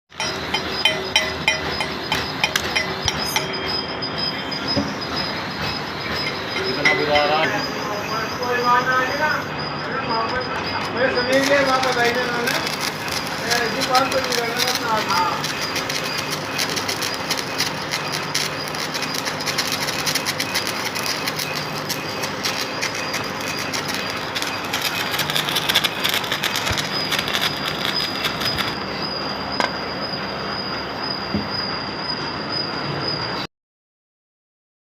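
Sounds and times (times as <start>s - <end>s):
thin high whine: 0.1s - 33.5s
arc welding crackling hiss: 11.2s - 28.8s.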